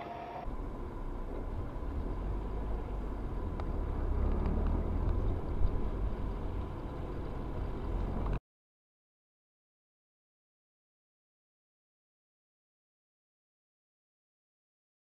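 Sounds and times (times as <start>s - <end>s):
car engine and road noise: 0.0s - 8.4s.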